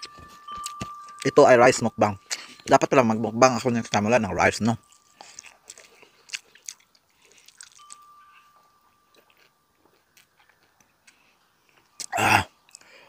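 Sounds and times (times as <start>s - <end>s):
faint thin steady tone: 0.0s - 13.0s
chewing with mouth clicks: 4.8s - 12.9s.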